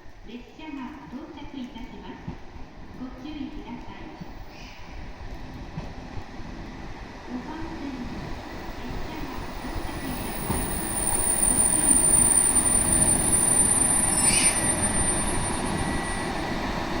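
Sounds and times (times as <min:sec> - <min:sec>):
diesel train running in: 0:06.0 - 0:17.0
brief high squeal: 0:09.6 - 0:16.7
steady high whine: 0:10.8 - 0:17.0.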